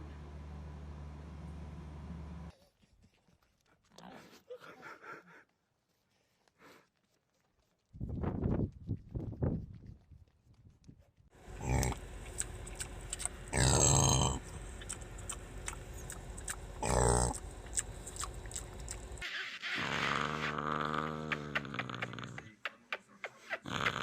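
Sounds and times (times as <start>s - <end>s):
dog growling: 11.5s - 19.2s, 19.8s - 22.5s, 23.6s - 24.0s
dog grunting: 11.6s - 19.2s, 19.8s - 22.6s, 23.6s - 24.0s.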